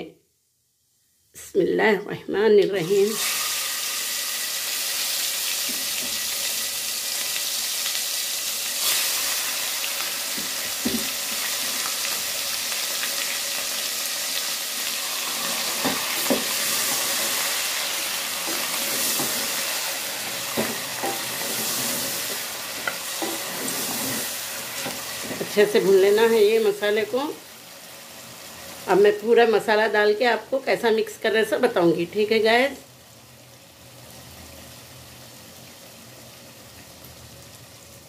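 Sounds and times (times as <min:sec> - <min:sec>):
paste sizzling in hot oil: 0:02.8 - 0:29.0.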